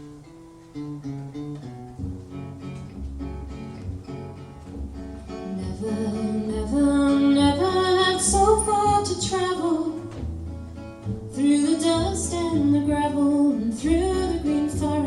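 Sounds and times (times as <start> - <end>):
acoustic guitar: 0.0 - 15.0
woman singing: 5.4 - 10.2, 11.3 - 15.0.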